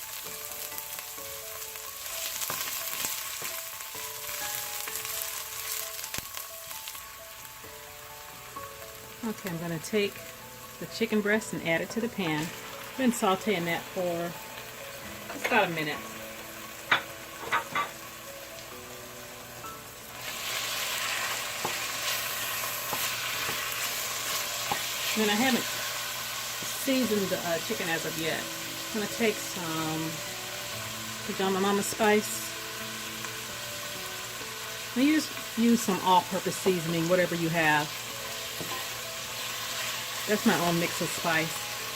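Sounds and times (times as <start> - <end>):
onion sizzling in a frying pan: 0.0 - 41.9.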